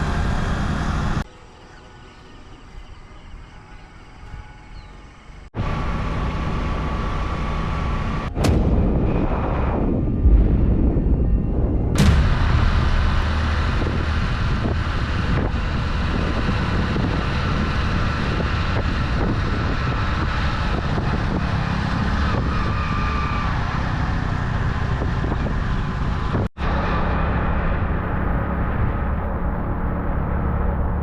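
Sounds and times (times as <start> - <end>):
wind on microphone: 8.3 - 26.5.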